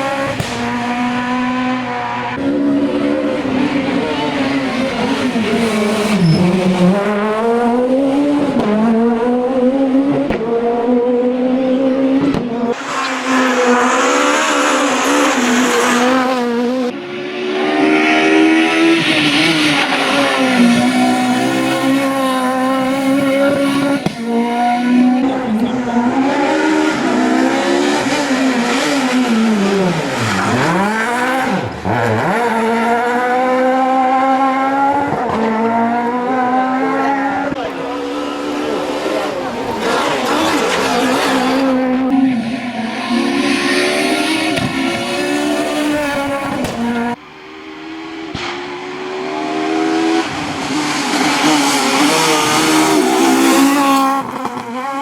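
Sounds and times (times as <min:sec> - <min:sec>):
rally car engines at full throttle: 0:00.0 - 0:55.0
tyre squeal on loose surface: 0:05.6 - 0:06.9.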